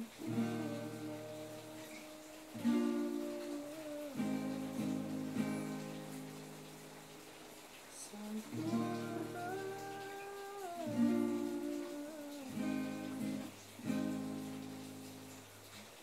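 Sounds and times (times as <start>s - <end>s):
person humming: 0.0s - 5.5s, 8.0s - 13.5s
acoustic guitar strumming: 0.0s - 7.2s, 8.5s - 15.4s.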